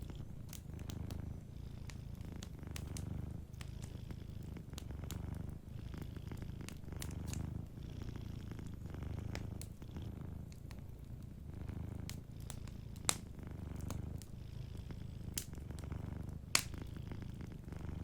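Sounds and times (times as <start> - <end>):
cat purring: 0.0 - 18.0
wood fire crackling: 0.0 - 18.0.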